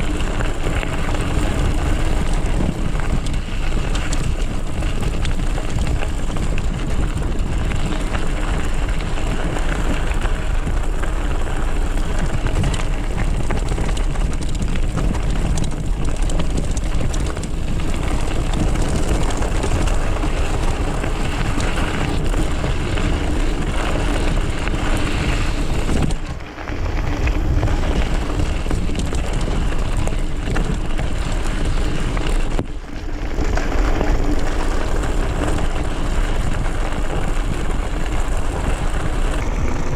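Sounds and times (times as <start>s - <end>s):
mountain bike rumbling on dirt: 0.0s - 39.9s
wind on microphone: 0.0s - 39.9s.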